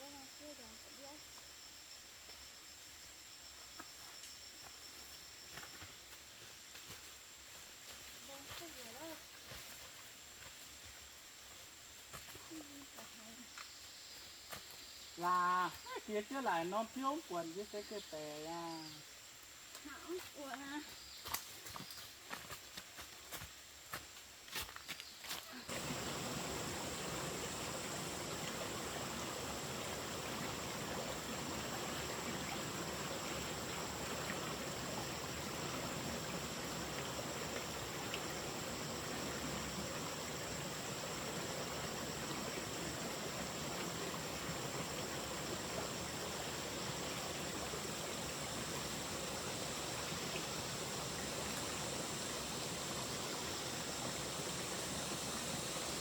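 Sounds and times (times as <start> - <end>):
water rushing: 25.7 - 56.0.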